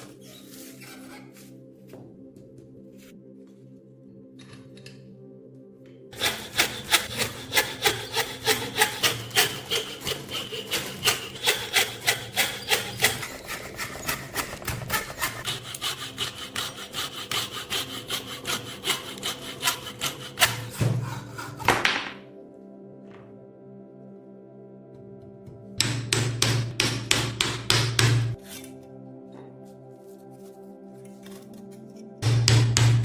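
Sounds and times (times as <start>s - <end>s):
hand tool scraping a rusted knife: 6.2s - 21.7s, 28.2s - 28.8s, 31.0s - 32.1s.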